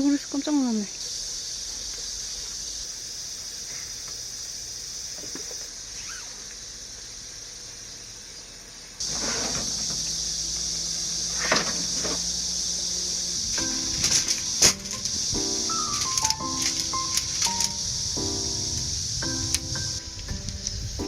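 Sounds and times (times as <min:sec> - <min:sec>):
insects chorus: 0:00.0 - 0:21.0
handling scraping and rustling: 0:09.0 - 0:10.0, 0:13.4 - 0:17.8.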